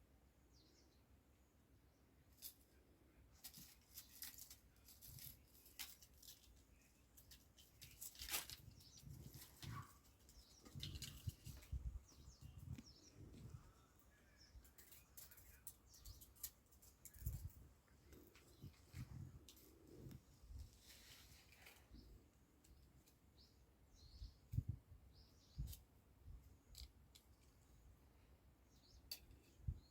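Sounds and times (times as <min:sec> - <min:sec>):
kitten scratching and clicking: 0:03.4 - 0:11.7.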